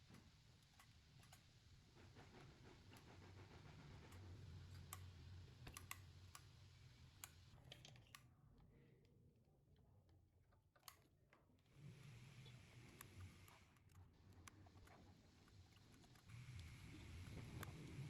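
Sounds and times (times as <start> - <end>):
light clicks and taps: 4.0 - 6.5, 10.1 - 11.6, 12.9 - 18.0.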